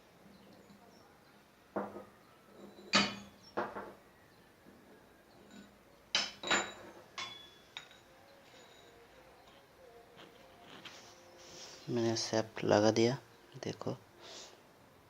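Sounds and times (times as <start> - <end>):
metallic clinks and knocks: 1.8 - 4.0, 5.2 - 10.8.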